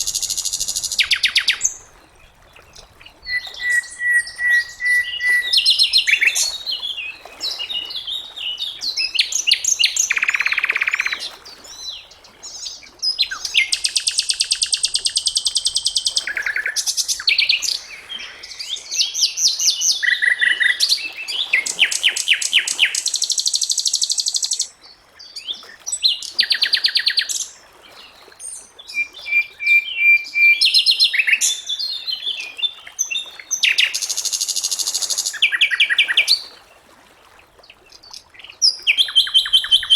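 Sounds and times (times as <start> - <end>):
bird whistle: 0.0 - 1.7, 3.3 - 6.5, 28.9 - 31.6.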